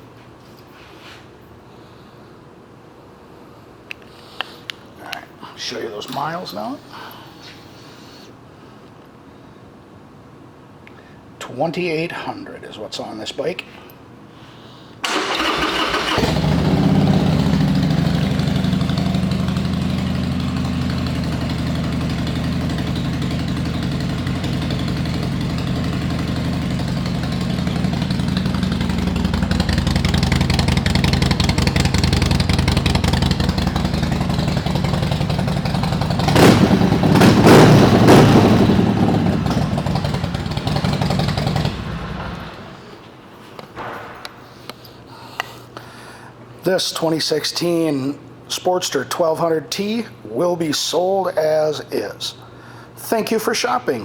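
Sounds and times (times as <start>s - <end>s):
motorcycle engine idling and revving: 15.1s - 42.9s.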